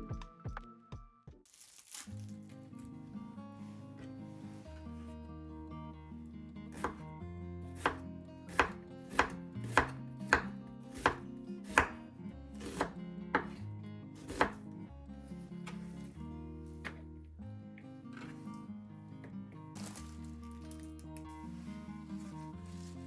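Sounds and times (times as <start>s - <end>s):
knife chopping on cutting board: 6.8s - 7.0s, 7.8s - 12.0s, 12.6s - 13.6s, 14.2s - 14.7s, 15.6s - 16.1s, 16.8s - 17.0s.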